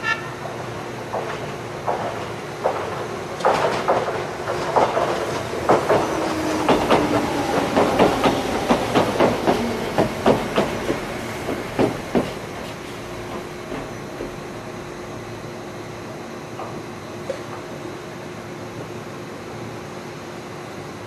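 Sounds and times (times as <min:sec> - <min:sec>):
train wheels clacking on joints: 0:00.4 - 0:14.5.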